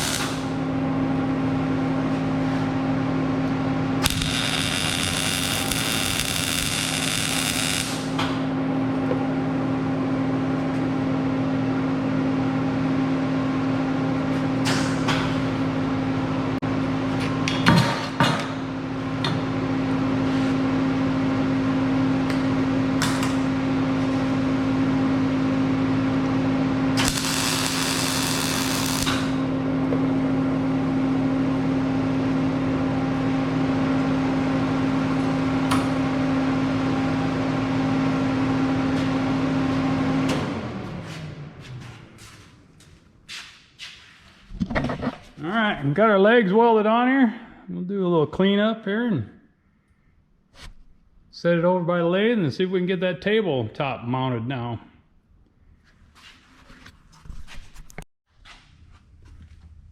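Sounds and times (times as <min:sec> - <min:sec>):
welding arc sizzle: 0:00.0 - 0:00.6, 0:04.0 - 0:08.5, 0:26.9 - 0:29.5
machine hum: 0:00.0 - 0:43.2.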